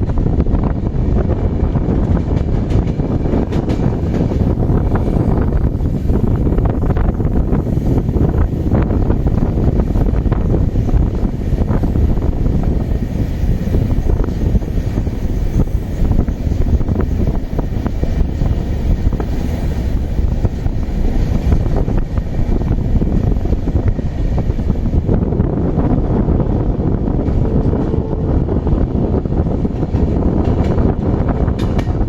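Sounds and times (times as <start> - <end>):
train rumbling: 0.0 - 32.0
wind buffeting microphone: 0.0 - 32.0
wheels knocking on track: 1.8 - 7.4, 29.7 - 32.0.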